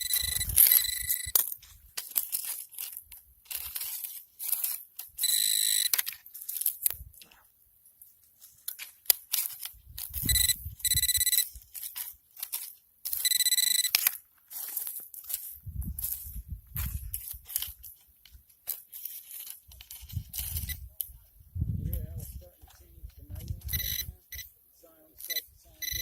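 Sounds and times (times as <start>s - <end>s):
metal detector buzzing: 0.0s - 1.6s, 5.2s - 6.1s, 10.2s - 11.5s, 13.1s - 14.2s, 23.6s - 24.5s, 25.2s - 26.0s
debris rustling: 0.0s - 24.0s.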